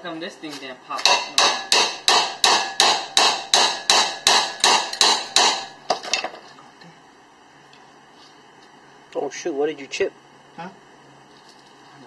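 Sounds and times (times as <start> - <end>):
hammer blows on metal: 1.0 - 5.8.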